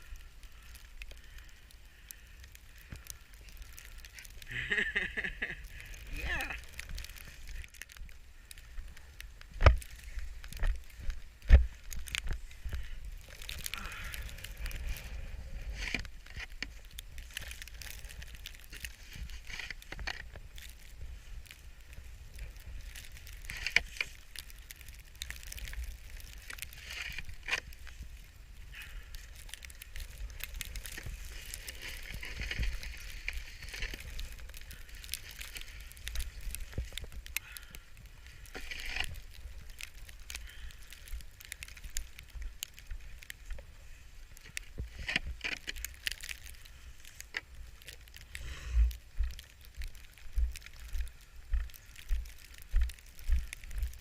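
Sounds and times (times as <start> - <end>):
footsteps crunching through snow: 25.8 - 37.9.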